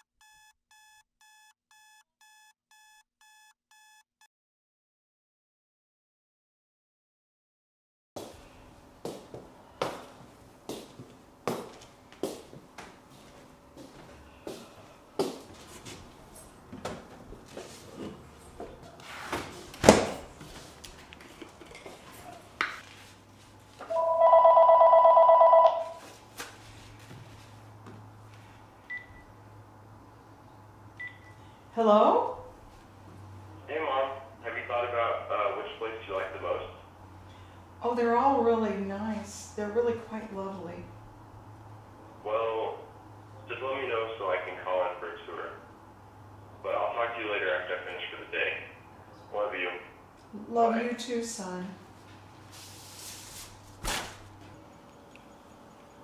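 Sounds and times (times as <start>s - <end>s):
faint electronic alarm beeping: 0.0s - 4.0s, 23.9s - 26.0s
telephone ringing: 23.9s - 26.0s.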